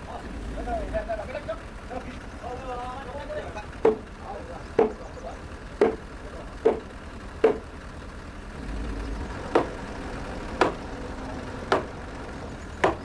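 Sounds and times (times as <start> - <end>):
hammer blows on timber: 3.8 - 5.1, 5.8 - 7.7, 9.5 - 10.0, 10.6 - 11.0, 11.6 - 12.2, 12.8 - 13.0.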